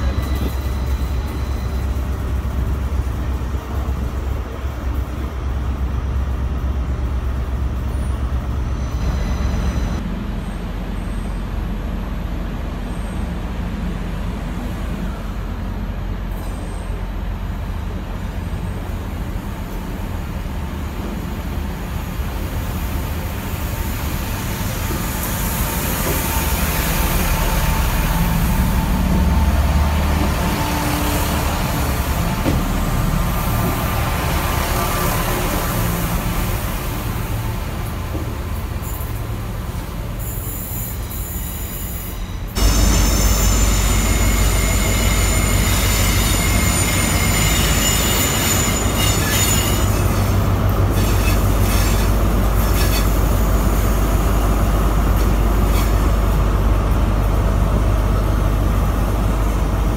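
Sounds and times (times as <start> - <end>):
train rumble: 0.0 - 59.9
train hiss: 22.5 - 56.3.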